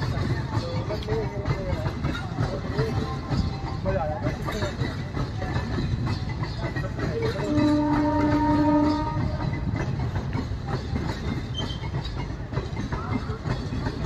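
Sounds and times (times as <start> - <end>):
train wheels clattering over rails: 0.0 - 14.0
train horn: 7.3 - 9.6.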